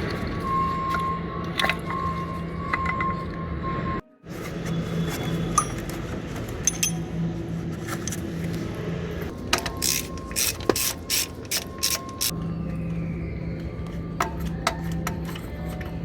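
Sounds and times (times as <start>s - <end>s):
ratchet mechanism clicking: 9.5s - 12.3s.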